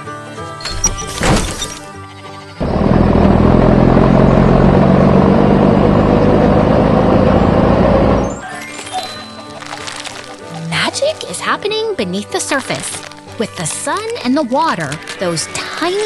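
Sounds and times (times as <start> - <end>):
background music: 0.0 - 3.1, 7.3 - 16.0
cartoon truck engine rumble: 0.9 - 9.0.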